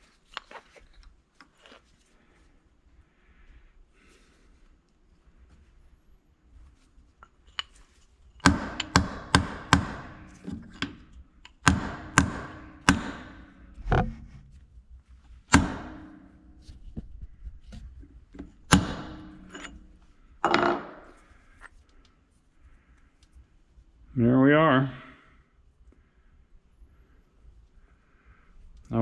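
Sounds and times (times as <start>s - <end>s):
hammer striking steel punch: 8.4s - 11.0s, 11.6s - 13.8s, 15.5s - 16.6s, 18.7s - 19.9s.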